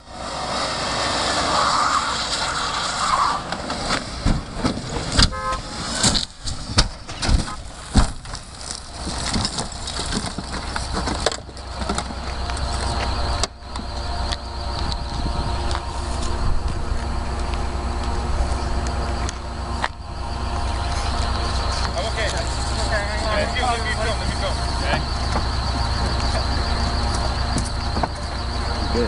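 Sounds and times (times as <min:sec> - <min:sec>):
car crashing and rolling: 0:00.0 - 0:14.3, 0:18.3 - 0:29.0
car driving: 0:00.0 - 0:29.0.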